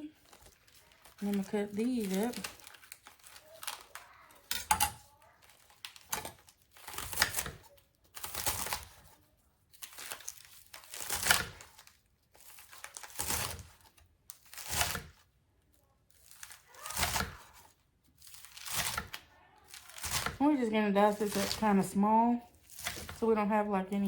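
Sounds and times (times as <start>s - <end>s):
knife slicing lettuce: 0.2s - 15.3s, 16.1s - 23.4s.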